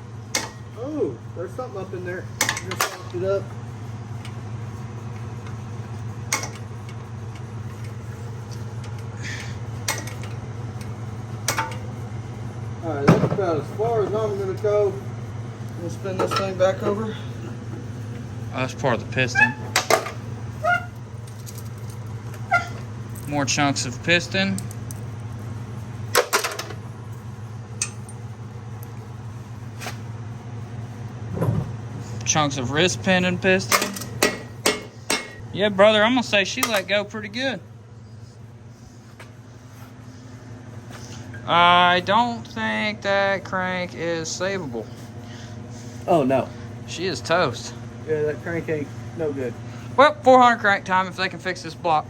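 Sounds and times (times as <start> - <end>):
steady low hum: 0.0 - 52.0
metal tool clanks and ticks: 33.7 - 35.4, 36.6 - 36.9.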